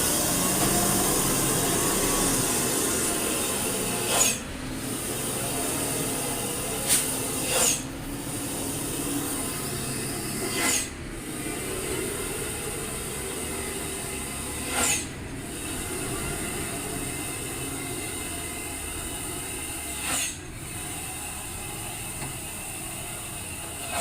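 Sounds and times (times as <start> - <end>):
air brake hiss: 0.0 - 6.2, 6.8 - 11.0, 14.6 - 18.3, 19.8 - 20.9
truck engine and road noise: 0.0 - 24.0.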